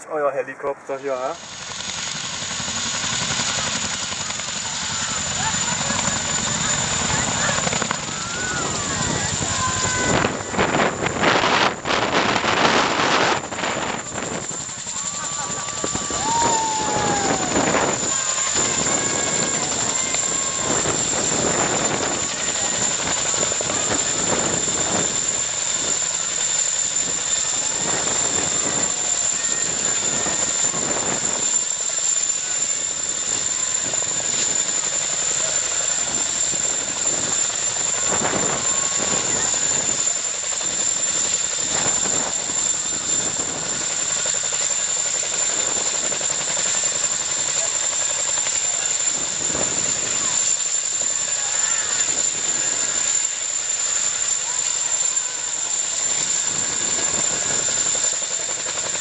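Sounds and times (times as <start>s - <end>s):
helicopter rushing noise: 0.0s - 59.0s
high-pitched whine: 4.8s - 34.8s.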